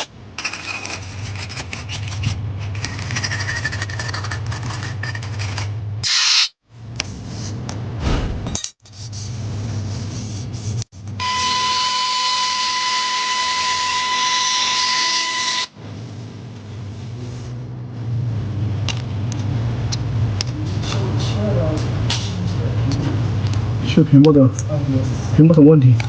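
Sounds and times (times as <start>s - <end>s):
rubbing and handling noise: 0.0s - 5.9s, 8.8s - 11.2s
low hum: 6.7s - 11.7s, 15.7s - 25.4s.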